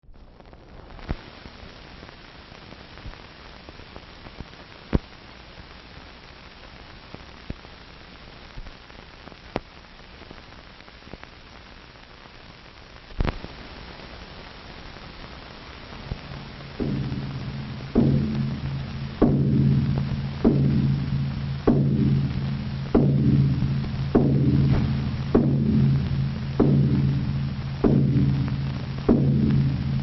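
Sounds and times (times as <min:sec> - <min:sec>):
static hiss: 0:00.0 - 0:30.0
record surface clicks and pops: 0:00.4 - 0:01.4, 0:04.2 - 0:05.2, 0:08.5 - 0:10.4, 0:13.1 - 0:13.7, 0:14.9 - 0:23.2.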